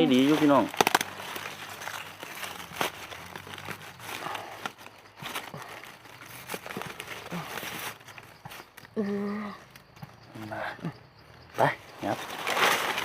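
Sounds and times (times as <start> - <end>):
footsteps rustling dry leaves: 0.0 - 8.7, 12.0 - 13.0
twigs snapping: 0.1 - 8.9.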